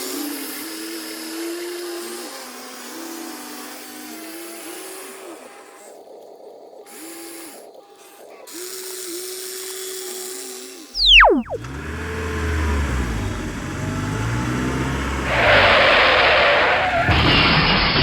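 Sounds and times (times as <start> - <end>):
small electric motors whining: 0.0 - 11.2.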